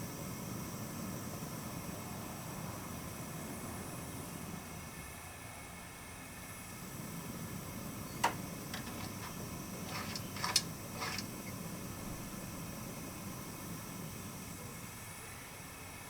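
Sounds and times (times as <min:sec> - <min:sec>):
steady hiss: 0:06.7 - 0:15.0
clicks and taps: 0:08.2 - 0:11.3.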